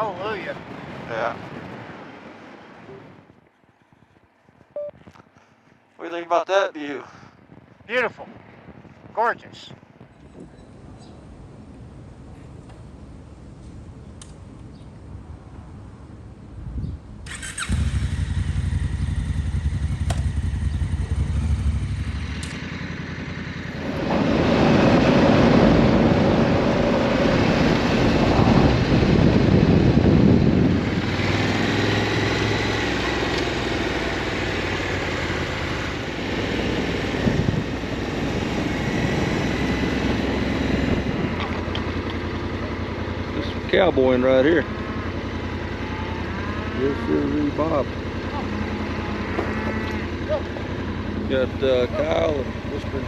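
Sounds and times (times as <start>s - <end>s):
road noise: 0.0s - 53.0s
motorcycle engine running: 17.3s - 53.0s.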